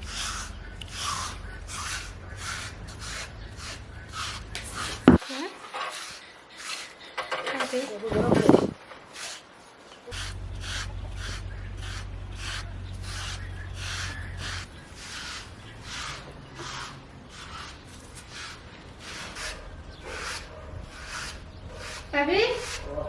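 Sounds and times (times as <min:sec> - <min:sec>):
steady low hum: 0:00.0 - 0:05.2, 0:10.1 - 0:22.2
rhythmic rubbing strokes: 0:00.0 - 0:09.4, 0:10.0 - 0:23.0.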